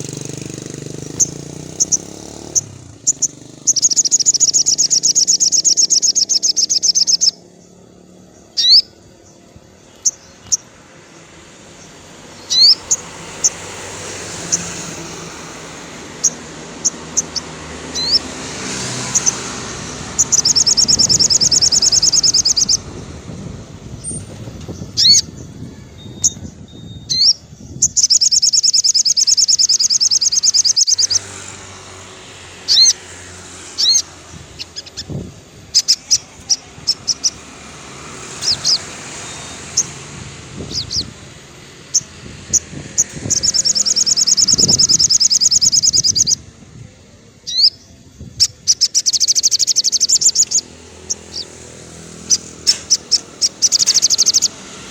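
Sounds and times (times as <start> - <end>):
bird sharp chirps: 0.0 - 7.6, 12.3 - 22.9, 24.0 - 31.6, 41.8 - 46.4, 47.4 - 54.8
sunbird high rapid trills: 0.0 - 22.9, 24.8 - 46.5, 47.4 - 54.9.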